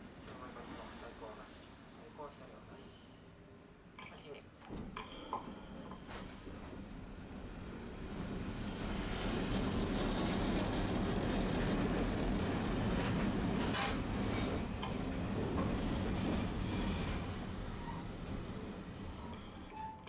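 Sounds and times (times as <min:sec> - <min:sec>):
streetcar wheels rumbling on rails: 0:05.2 - 0:20.0
wheel squeal: 0:16.6 - 0:20.0.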